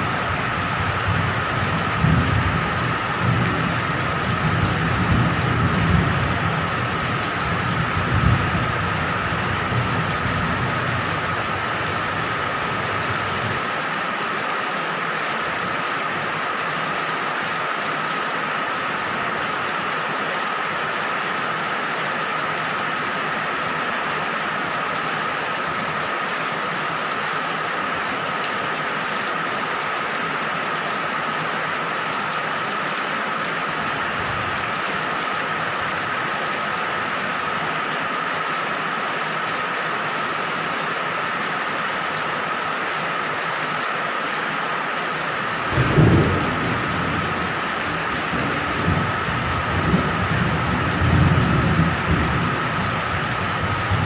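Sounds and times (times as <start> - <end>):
steady rain falling: 0.0 - 54.0
low rumble of thunder: 0.1 - 13.6, 45.6 - 54.0.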